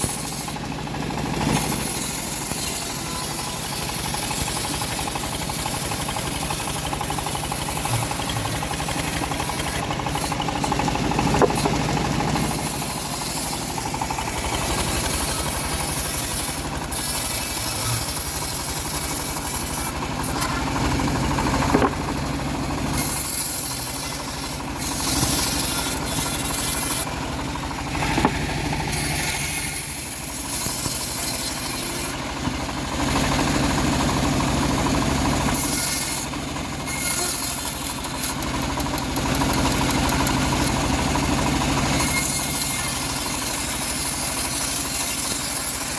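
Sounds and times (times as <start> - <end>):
bandsaw mill sawing wood: 0.0 - 45.9
sharp knocks: 11.3 - 11.8, 21.6 - 22.1.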